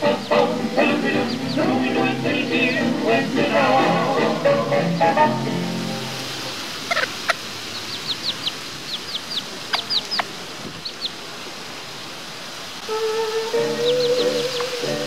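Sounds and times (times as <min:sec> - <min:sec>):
birds chirping: 0:00.0 - 0:05.7, 0:06.8 - 0:11.3, 0:13.4 - 0:15.0
steady rushing noise: 0:00.0 - 0:12.8.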